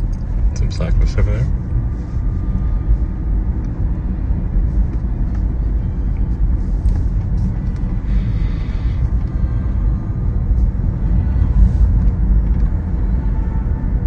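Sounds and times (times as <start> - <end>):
road and tyre noise in car: 0.0 - 14.0.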